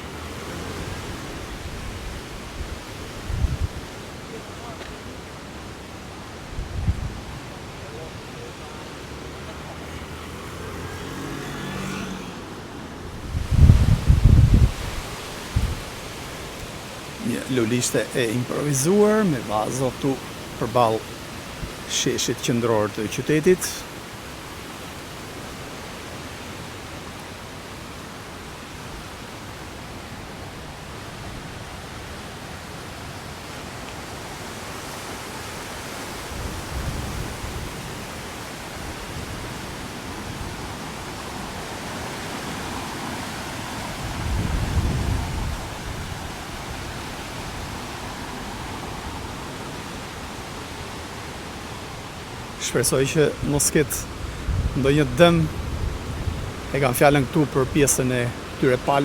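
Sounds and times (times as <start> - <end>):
strong wind buffeting microphone: 0.7 - 4.0, 6.4 - 7.4, 13.0 - 17.3, 43.8 - 49.1, 53.3 - 59.0.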